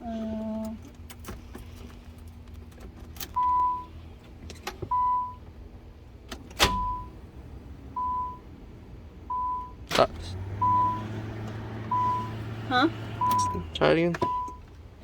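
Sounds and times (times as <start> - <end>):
car warning chime beeps: 3.3 - 3.9, 4.9 - 5.4, 6.8 - 7.2, 7.9 - 8.5, 9.3 - 9.9, 10.6 - 11.2, 11.9 - 14.7.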